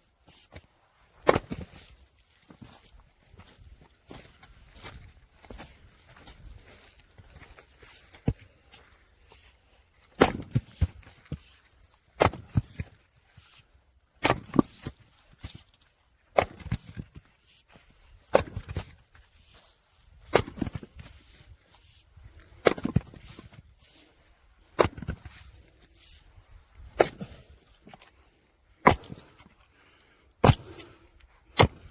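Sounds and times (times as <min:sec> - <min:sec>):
log splitting crack: 0:01.2 - 0:01.9, 0:10.2 - 0:11.3, 0:12.2 - 0:13.0, 0:14.2 - 0:15.6, 0:16.3 - 0:17.2, 0:18.3 - 0:19.0, 0:20.2 - 0:21.1, 0:22.6 - 0:23.6, 0:24.8 - 0:25.6, 0:26.8 - 0:28.1, 0:28.8 - 0:29.5, 0:30.4 - 0:31.9.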